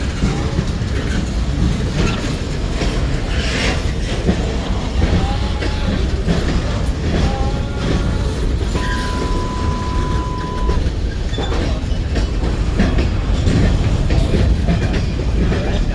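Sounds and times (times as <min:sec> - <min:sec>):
train cars rumbling past: 0:00.0 - 0:15.9
wheel clacks over rail joints: 0:00.0 - 0:15.9
high wheel squeals: 0:08.0 - 0:11.8.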